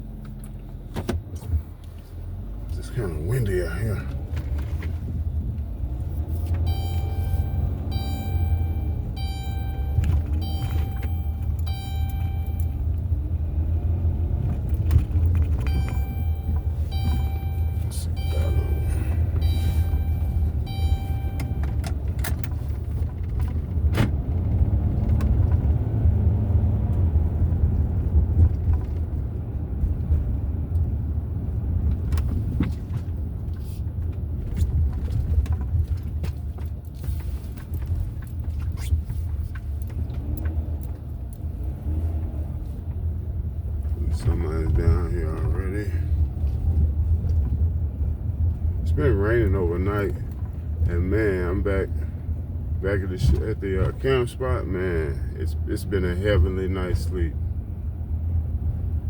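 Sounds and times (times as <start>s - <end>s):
road and engine rumble: 0.0s - 59.0s
electronic chimes: 6.7s - 12.8s, 15.7s - 21.7s.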